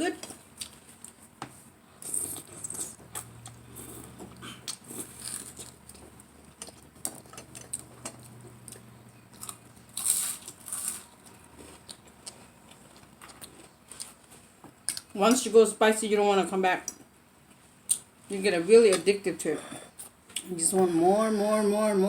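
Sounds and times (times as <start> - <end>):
chewing and mouth smacks: 2.0 - 15.1.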